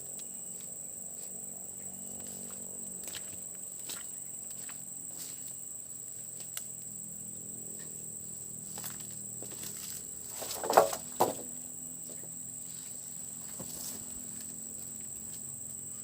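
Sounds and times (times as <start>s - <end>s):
insects trilling: 0.0s - 16.0s
short rustles or knocks: 10.3s - 11.6s.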